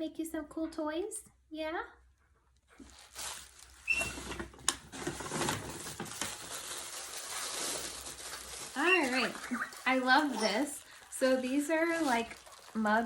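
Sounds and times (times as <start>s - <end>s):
plastic packaging crinkling: 2.8s - 13.0s.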